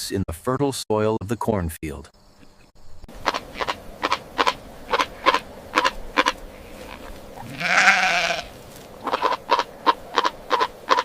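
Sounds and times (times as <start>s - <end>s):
animal calls: 2.4s - 11.0s.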